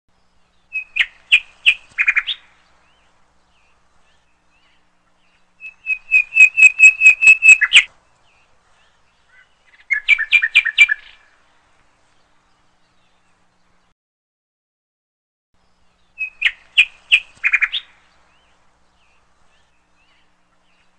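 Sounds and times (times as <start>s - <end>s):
bird singing quick chirps: 0.4s - 2.6s, 3.5s - 11.2s, 16.0s - 20.9s.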